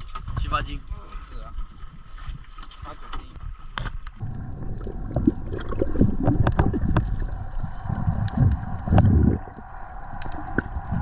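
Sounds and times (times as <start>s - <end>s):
wind buffeting microphone: 4.2s - 11.0s.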